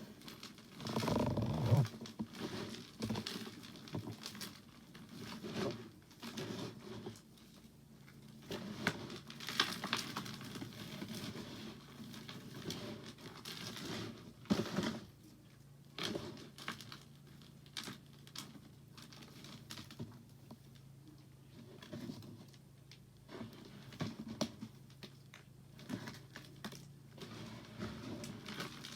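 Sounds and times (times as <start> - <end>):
soap crunching and crumbling: 21.8 - 28.9.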